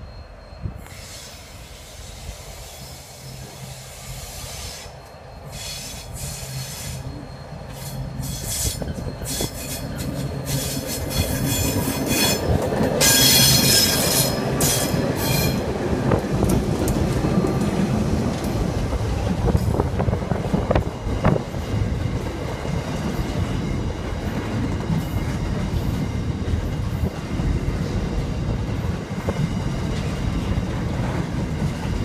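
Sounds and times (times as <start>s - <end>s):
wheel squeal: 0.0s - 15.7s
locomotive engines droning: 0.0s - 32.0s.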